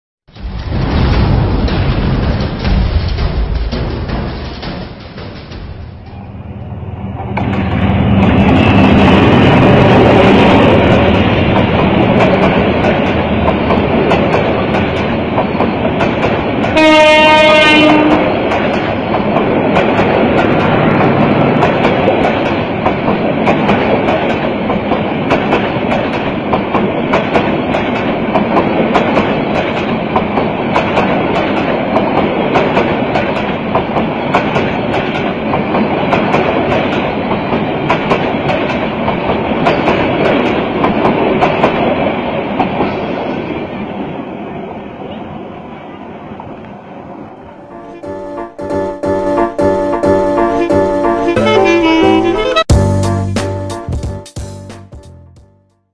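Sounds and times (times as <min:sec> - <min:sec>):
locomotive passing: 0:00.3 - 0:53.7
train horn blast: 0:16.8 - 0:18.4, 0:47.6 - 0:53.8.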